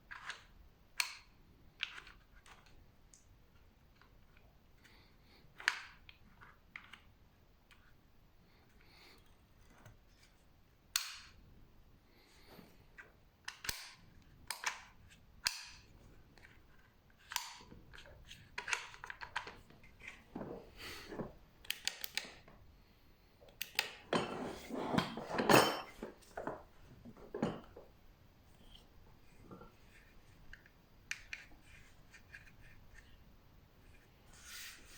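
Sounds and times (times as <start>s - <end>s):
plastic and metal parts clattering: 24.1s - 27.8s.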